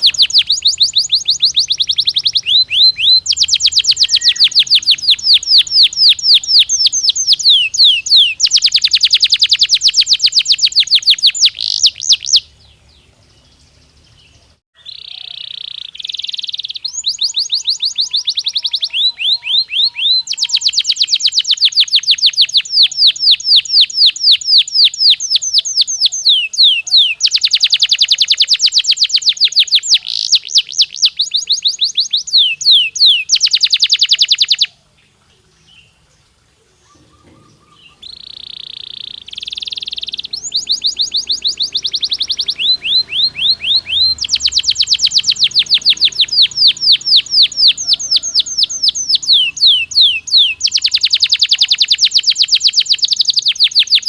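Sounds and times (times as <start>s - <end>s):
canary singing: 0.0s - 36.0s, 36.8s - 54.0s.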